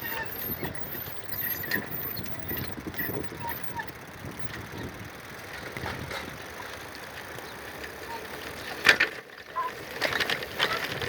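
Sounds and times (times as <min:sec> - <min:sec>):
bicycle coasting rush: 0:00.0 - 0:11.0.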